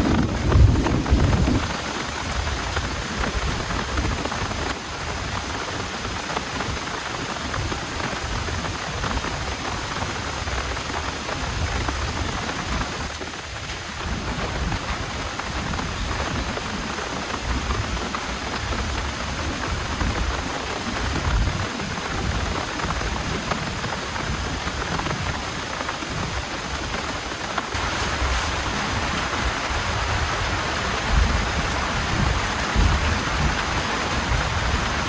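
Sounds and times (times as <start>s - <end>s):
low rumble: 0.0s - 1.7s
heavy rain falling: 0.0s - 35.0s.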